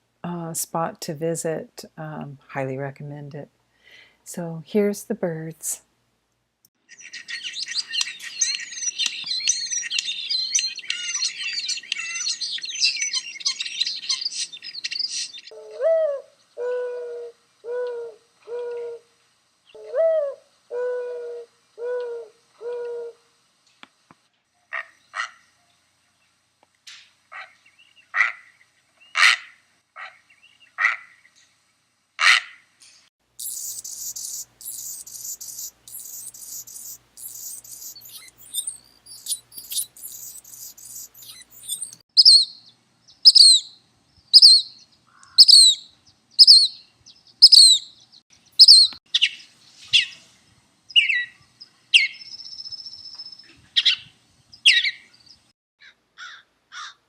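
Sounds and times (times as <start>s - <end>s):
down-slurred whistled bird notes: 6.9s - 15.5s, 33.4s - 43.7s, 47.4s - 47.9s, 48.6s - 49.0s
dense high twittering: 33.4s - 42.4s
short bird calls: 33.4s - 42.6s.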